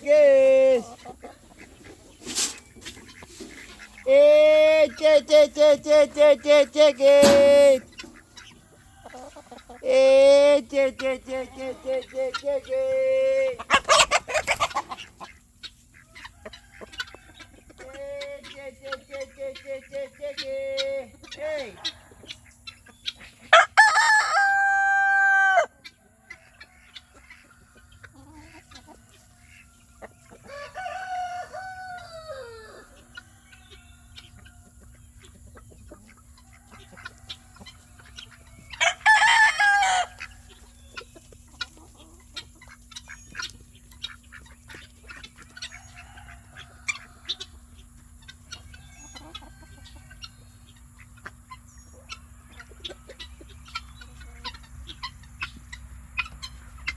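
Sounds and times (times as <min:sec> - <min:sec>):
rooster crowing: 0:23.5 - 0:25.8, 0:30.4 - 0:34.3, 0:36.8 - 0:40.3, 0:45.6 - 0:47.6.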